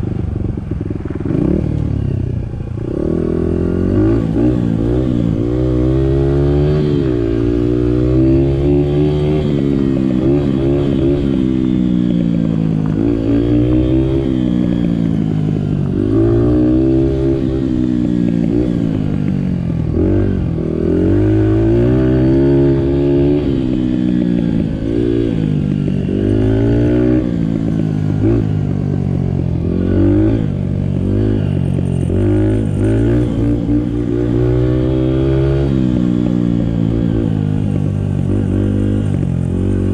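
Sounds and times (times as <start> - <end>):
dirt bike engine revving: 2.9 - 15.3, 19.9 - 28.6, 29.6 - 39.9.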